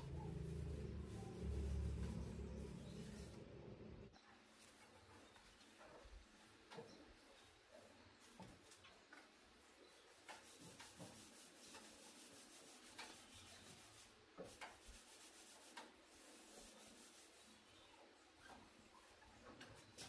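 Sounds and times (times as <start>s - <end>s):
faint scraping on a surface: 0.0s - 3.9s.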